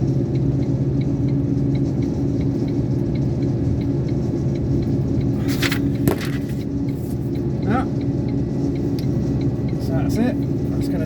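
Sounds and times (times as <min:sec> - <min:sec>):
sharp knock: 0:06.1 - 0:06.5.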